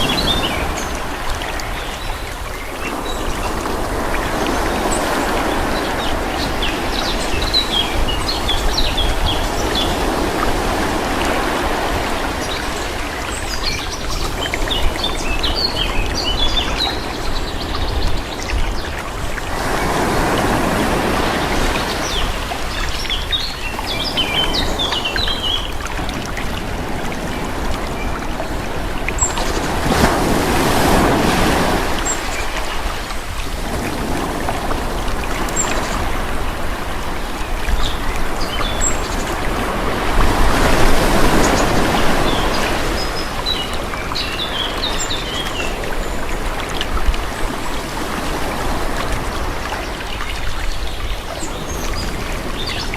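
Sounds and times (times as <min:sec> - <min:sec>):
birds chirping: 0:00.0 - 0:33.1, 0:37.4 - 0:46.7
sea waves washing ashore: 0:00.0 - 0:52.9.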